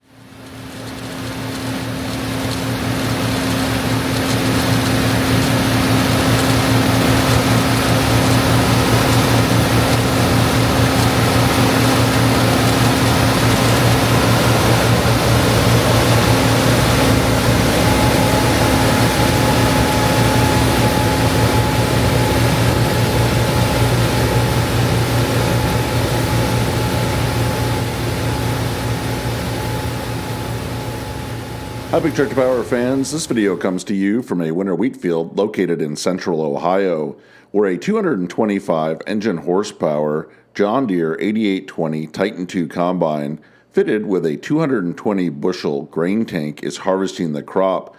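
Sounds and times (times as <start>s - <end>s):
thin steady whine: 0.0s - 33.8s
combine harvester running: 0.1s - 33.6s.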